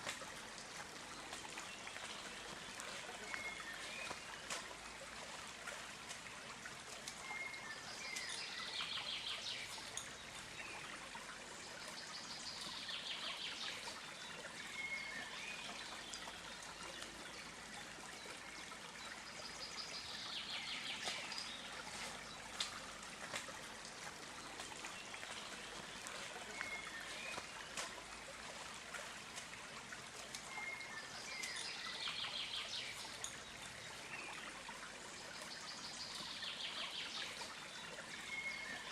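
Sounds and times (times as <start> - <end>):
steady outdoor hiss: 0.0 - 38.9.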